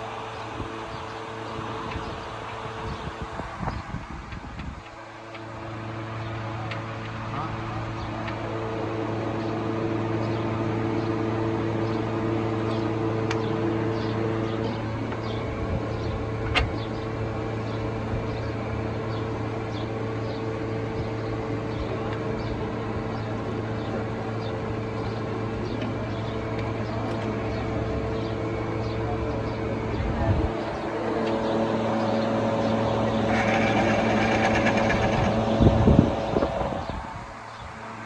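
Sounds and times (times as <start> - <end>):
car engine running: 30.6 - 37.1.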